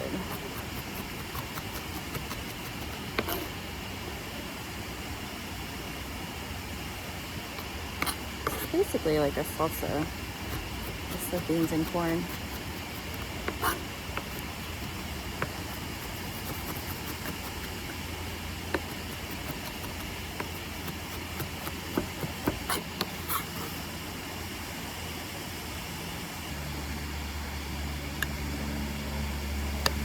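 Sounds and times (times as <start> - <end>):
low hum: 23.6 - 30.0.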